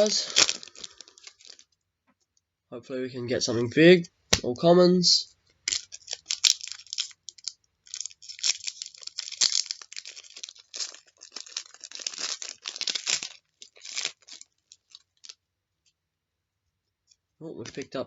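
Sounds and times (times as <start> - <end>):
foil wrapper tearing and crinkling: 0.0 - 1.7, 5.7 - 15.4.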